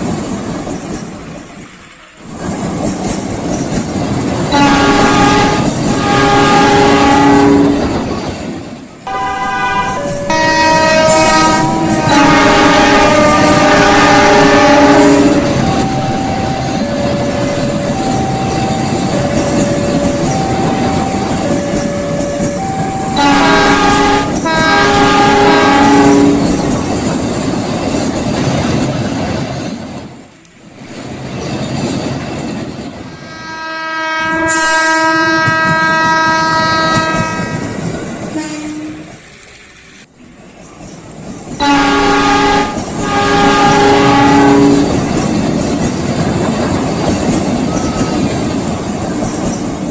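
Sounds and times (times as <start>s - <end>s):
passing train rumble: 0.0s - 49.9s
train horn blasts: 4.5s - 8.0s, 9.1s - 26.6s, 33.2s - 39.2s, 41.6s - 45.1s
alternating two-note tone: 9.1s - 12.3s, 15.2s - 24.0s.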